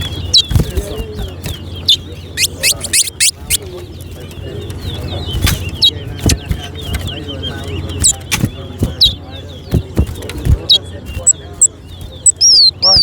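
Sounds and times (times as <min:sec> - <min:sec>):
finches whistling sharp notes: 0:00.0 - 0:03.6
low steady hum: 0:00.0 - 0:13.0
small birds chattering: 0:00.0 - 0:13.0.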